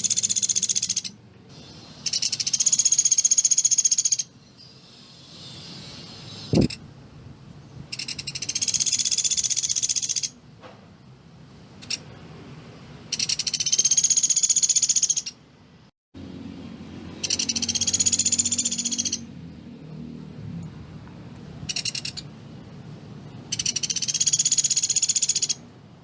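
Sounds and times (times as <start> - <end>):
woodpecker high-pitched trills: 0.0 - 1.2, 2.0 - 4.3, 7.9 - 10.4, 13.1 - 15.4, 17.2 - 19.3, 21.7 - 22.3, 23.5 - 25.6.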